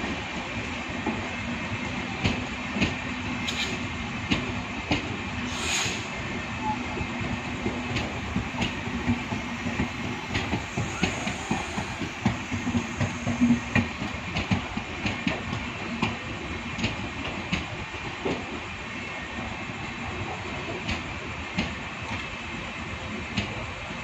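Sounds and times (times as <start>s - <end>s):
train coaches rumbling: 0.0s - 24.0s.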